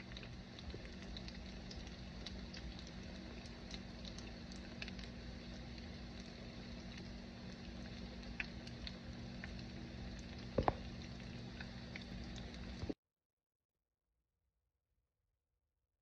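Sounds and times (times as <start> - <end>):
low steady hum: 0.0 - 13.0
oil popping: 6.9 - 13.0.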